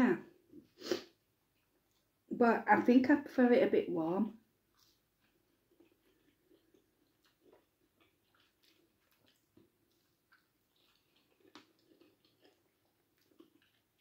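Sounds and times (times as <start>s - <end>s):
faint chewing: 0.4s - 2.2s, 4.6s - 14.0s.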